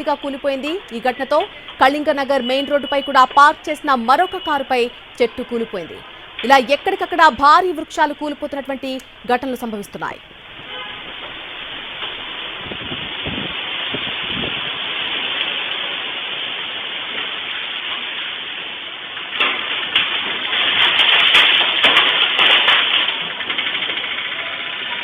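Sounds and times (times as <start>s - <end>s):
crackles: 0.0s - 25.0s
rain: 0.0s - 25.0s
storm wind: 10.3s - 15.4s.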